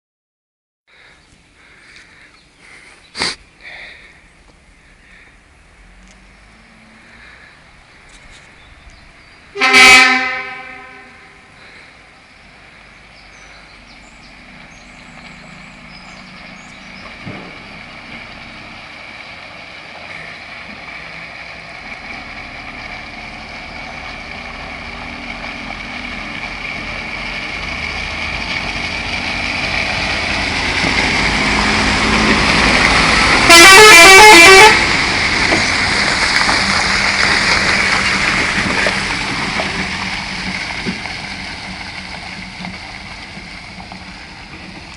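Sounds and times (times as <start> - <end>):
truck engine approaching: 0.9 - 44.9
truck horn blast: 9.5 - 11.6, 33.1 - 35.0.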